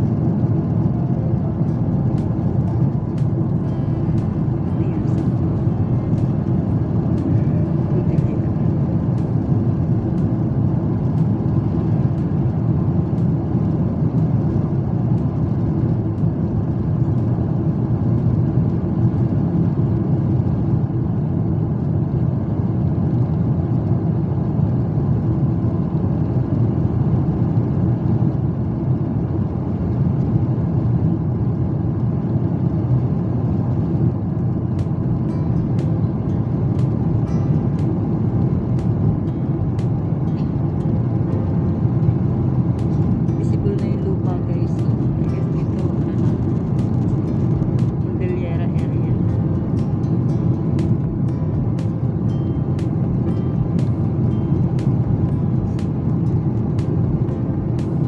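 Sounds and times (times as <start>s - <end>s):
jet engines rumbling: 0.0s - 58.0s
rushing air in cabin: 0.0s - 58.0s.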